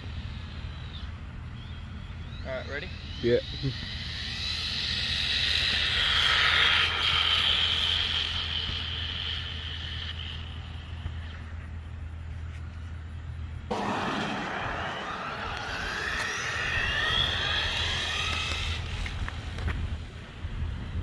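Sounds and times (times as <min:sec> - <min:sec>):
rc car motor whine: 0:00.0 - 0:12.7, 0:13.7 - 0:21.0
wind rumble: 0:13.1 - 0:21.0.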